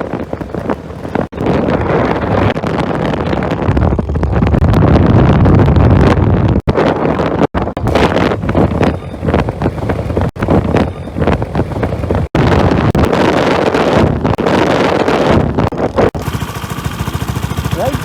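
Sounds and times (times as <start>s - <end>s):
wind buffeting microphone: 0.0s - 18.0s
road noise: 7.6s - 18.0s
scooter engine droning: 16.2s - 18.0s.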